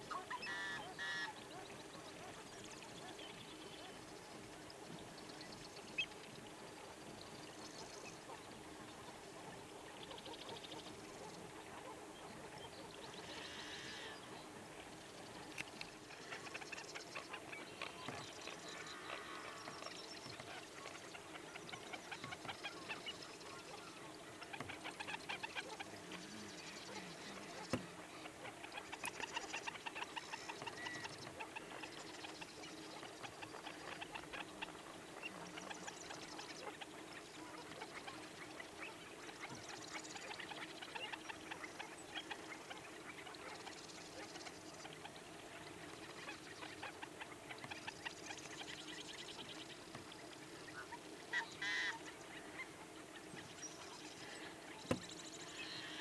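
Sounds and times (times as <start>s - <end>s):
waterbirds calling: 0.0s - 56.0s.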